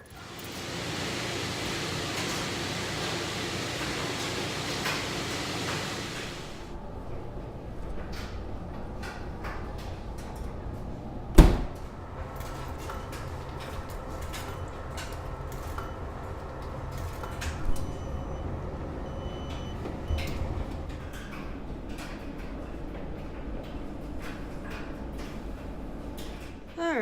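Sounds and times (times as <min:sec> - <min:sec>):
door banging shut: 0:11.3 - 0:11.8
short electronic beeps: 0:19.0 - 0:20.3.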